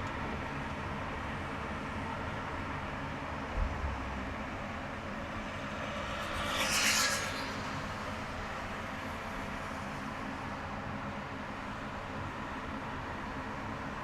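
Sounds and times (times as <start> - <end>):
car driving on highway: 0.0 - 14.0
brief hiss: 5.6 - 9.1.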